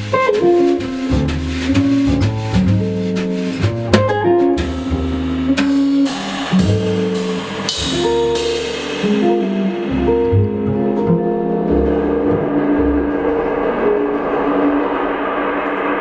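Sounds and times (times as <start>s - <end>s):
drum kit: 0.0s - 16.0s
guitar notes: 0.0s - 16.0s
low bass notes: 0.0s - 16.0s
cymbal crashes: 4.7s - 10.7s, 11.3s - 16.0s.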